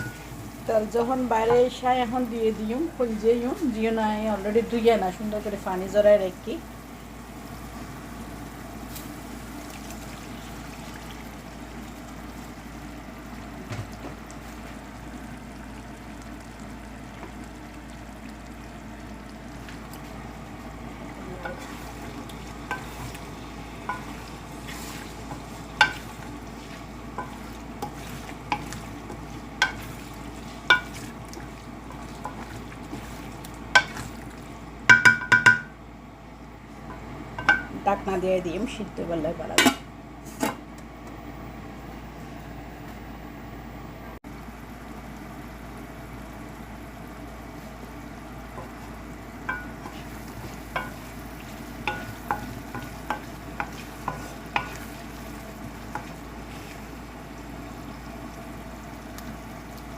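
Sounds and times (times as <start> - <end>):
liver sizzling in hot oil: 0.0 - 35.8, 44.3 - 59.9
spatula scraping a pan: 23.9 - 31.2, 31.9 - 34.1, 51.7 - 55.3.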